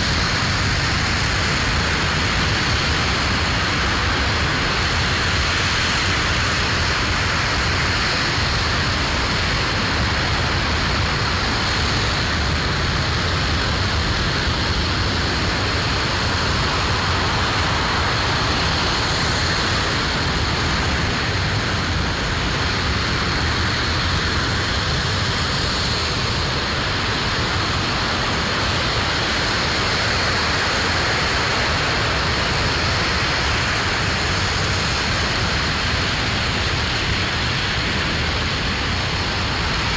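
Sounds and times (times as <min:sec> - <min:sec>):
rocket engine roaring: 0:00.0 - 0:39.9.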